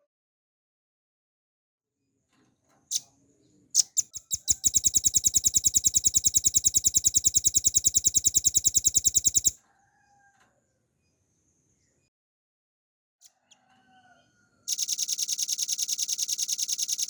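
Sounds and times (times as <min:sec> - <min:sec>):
bird calling with rapid trill: 0:03.8 - 0:09.6, 0:14.7 - 0:17.0.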